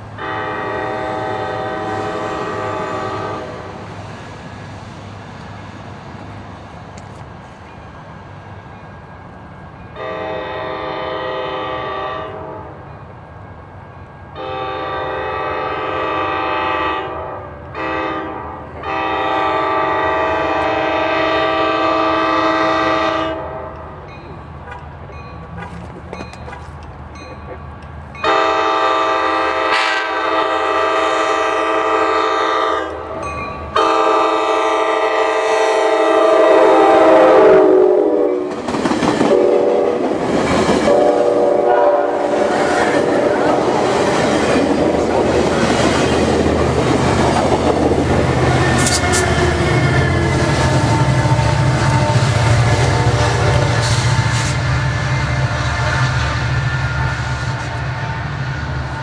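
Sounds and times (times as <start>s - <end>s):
diesel locomotive droning: 0.0s - 59.0s
low rumble of passing train: 0.0s - 59.0s
train air horn blasts: 0.2s - 3.8s, 10.0s - 12.8s, 14.4s - 24.0s, 28.2s - 38.6s, 39.2s - 40.1s, 40.8s - 44.6s, 48.1s - 57.9s.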